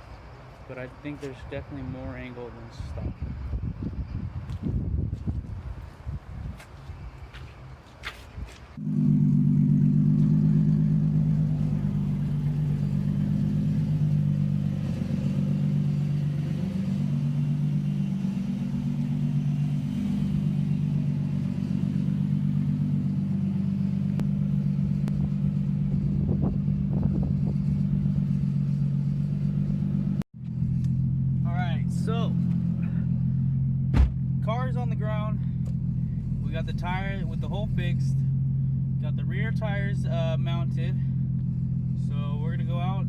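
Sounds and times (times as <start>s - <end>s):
car engine idling: 8.8s - 43.0s.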